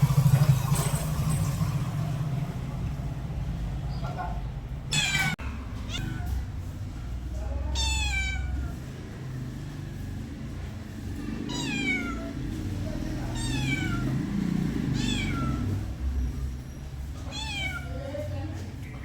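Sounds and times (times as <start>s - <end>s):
cat meowing: 4.9s - 6.5s, 7.7s - 8.8s, 11.3s - 12.4s, 13.2s - 15.9s, 17.2s - 18.1s.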